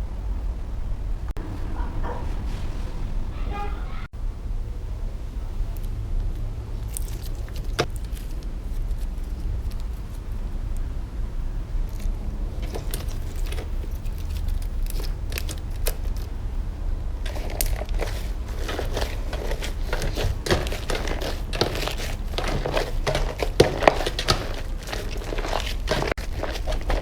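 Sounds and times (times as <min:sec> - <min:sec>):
slime crackling and popping: 0:17.3 - 0:27.0.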